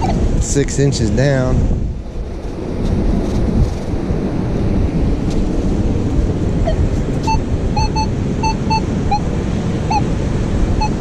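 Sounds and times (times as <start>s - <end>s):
wind buffeting the microphone: 0.0s - 11.0s
metal detector short high beeps: 6.7s - 9.3s, 10.8s - 11.0s.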